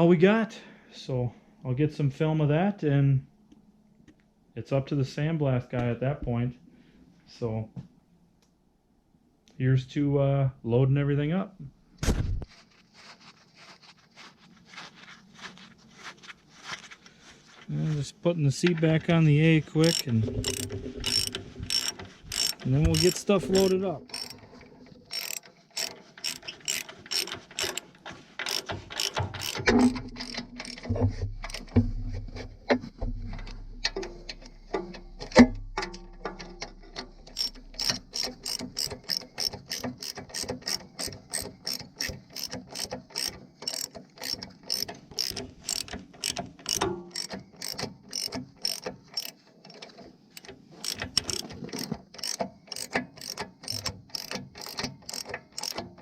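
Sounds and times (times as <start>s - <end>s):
ratchet wrench clicking: 19.8s - 24.4s, 25.1s - 31.7s, 37.3s - 49.8s, 50.4s - 56.0s.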